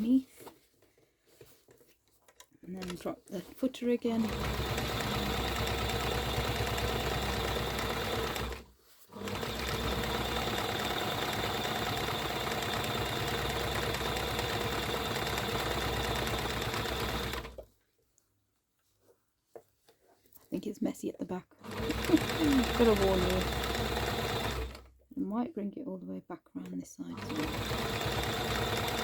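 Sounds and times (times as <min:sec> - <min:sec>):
sewing machine running: 0:04.1 - 0:08.6, 0:09.2 - 0:17.6, 0:21.6 - 0:24.9, 0:27.1 - 0:29.0.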